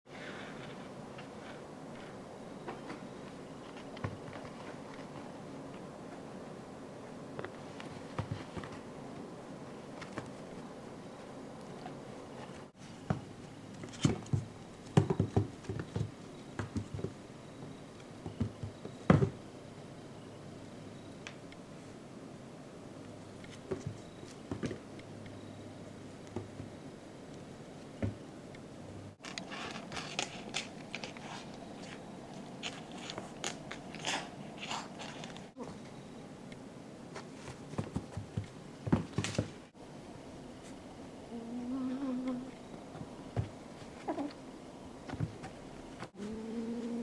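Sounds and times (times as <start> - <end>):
kitten paws pattering and thumping: 37.2 - 39.6.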